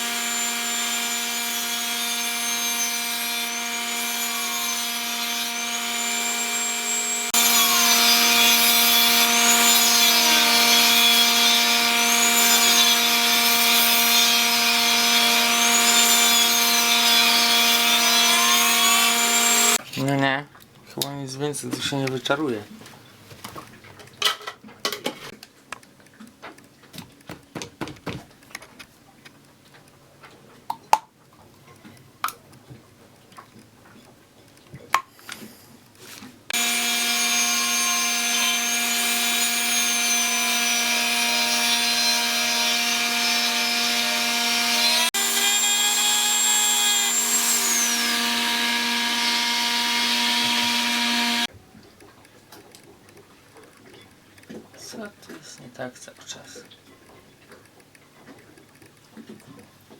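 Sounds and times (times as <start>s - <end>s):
rotary tool whining: 0.0s - 19.8s, 36.5s - 51.5s.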